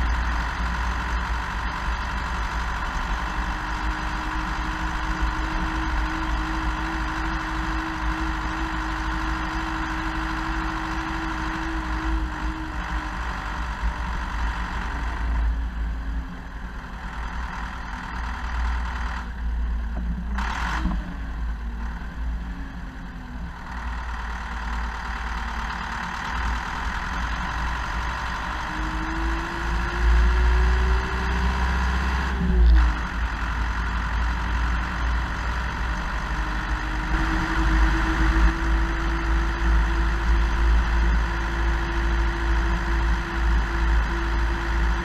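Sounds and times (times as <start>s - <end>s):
tractor diesel engine rumbling: 0.0s - 45.0s.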